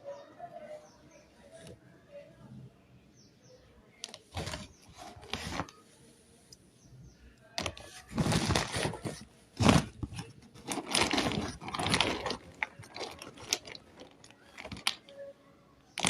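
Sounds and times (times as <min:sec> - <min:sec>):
crunchy chewing: 0:07.6 - 0:15.2.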